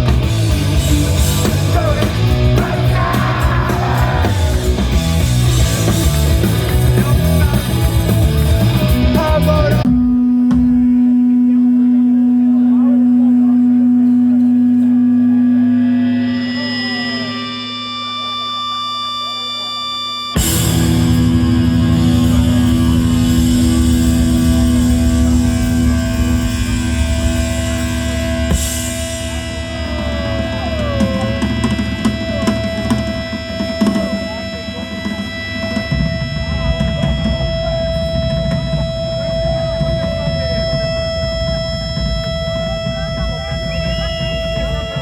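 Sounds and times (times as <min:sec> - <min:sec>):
dense low rumble: 0:00.0 - 0:11.0, 0:20.4 - 0:45.0
punk band playing: 0:00.0 - 0:12.8, 0:13.6 - 0:45.0
faint crowd voices: 0:00.0 - 0:45.0
held electric guitar tones: 0:00.0 - 0:45.0.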